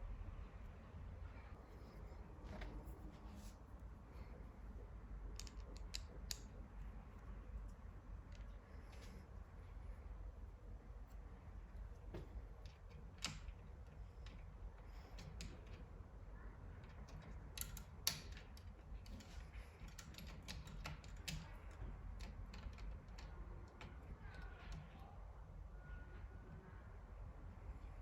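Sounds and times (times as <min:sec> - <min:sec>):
metal parts and tools clicking: 0:05.3 - 0:06.6, 0:16.8 - 0:23.3.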